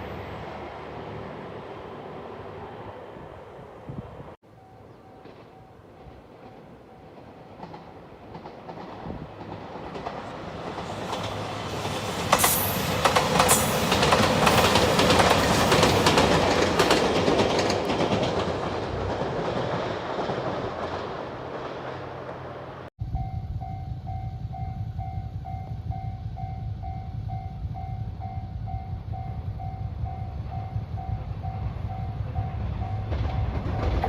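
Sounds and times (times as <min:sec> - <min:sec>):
train rumble passing: 0:00.0 - 0:34.0
wheels clicking over rail joints: 0:04.5 - 0:22.8, 0:32.3 - 0:34.0.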